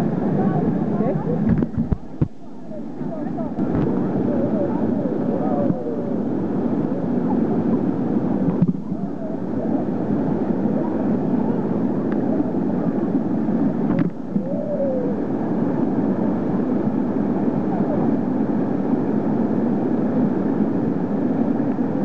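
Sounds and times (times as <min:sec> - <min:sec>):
faint voices: 0:00.1 - 0:15.4, 0:17.4 - 0:18.6.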